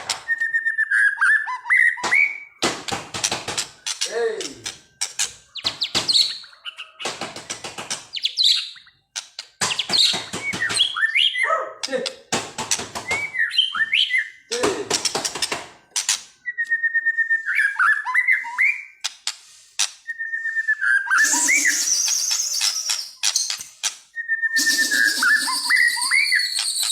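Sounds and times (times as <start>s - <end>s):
bird singing harsh notes and whistles: 0.1s - 2.6s, 3.6s - 7.1s, 8.1s - 11.5s, 13.0s - 14.5s, 16.0s - 19.1s, 19.9s - 26.9s.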